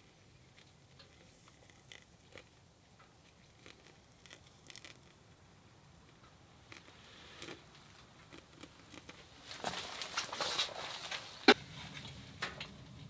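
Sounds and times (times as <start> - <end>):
low hiss: 0.0 - 9.5
small clicks and crunches: 0.4 - 5.2, 6.0 - 12.8.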